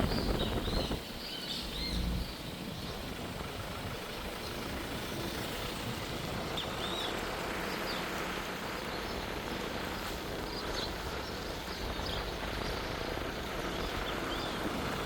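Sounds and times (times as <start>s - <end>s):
bird chirps: 0.0s - 3.0s
outdoor background hiss: 0.0s - 15.0s.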